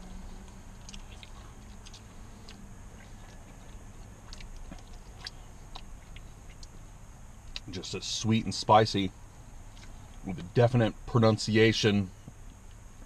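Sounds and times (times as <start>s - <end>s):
person chewing chicken wing: 0.4s - 6.8s
wet mouth clicks and smacks: 0.4s - 6.8s, 9.7s - 10.0s.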